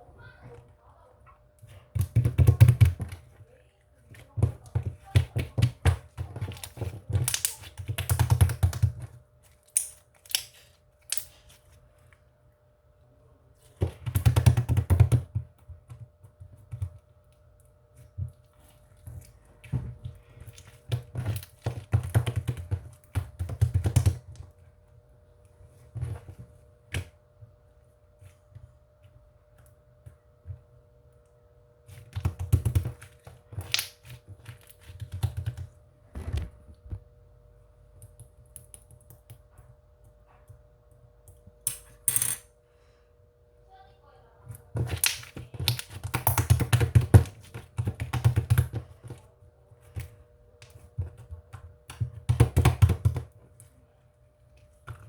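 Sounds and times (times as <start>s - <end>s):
rapid clicking and tapping: 4.4s - 9.1s, 21.2s - 24.3s.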